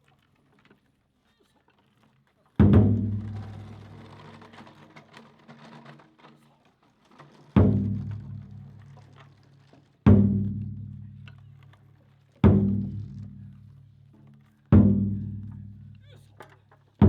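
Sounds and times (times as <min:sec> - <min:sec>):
large drum struck heavily: 0:02.6 - 0:03.5, 0:12.5 - 0:13.5, 0:14.8 - 0:15.8.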